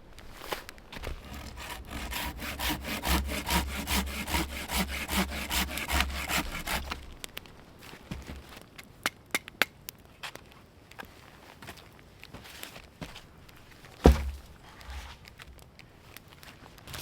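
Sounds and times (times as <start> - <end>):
hand saw cutting wood: 1.0 - 7.1.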